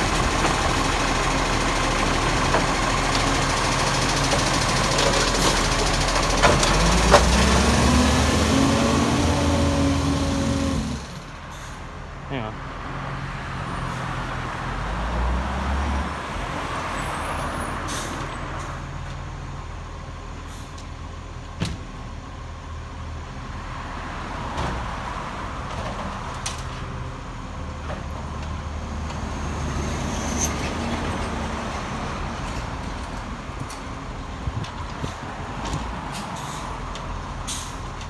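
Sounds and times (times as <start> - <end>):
garbage truck engine running: 0.0 - 12.0.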